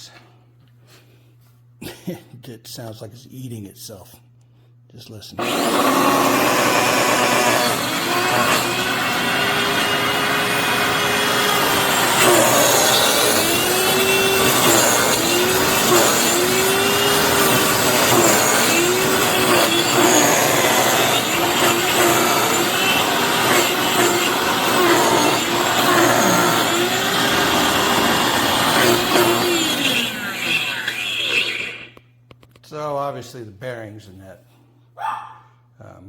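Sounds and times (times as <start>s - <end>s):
floor cleaner motor grinding: 5.4s - 32.0s
motor squeal: 29.0s - 32.0s.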